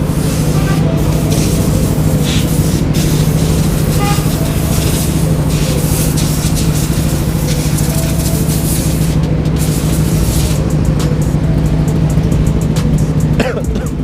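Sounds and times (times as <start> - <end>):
two-stroke motorcycle engine: 0.0 - 14.0.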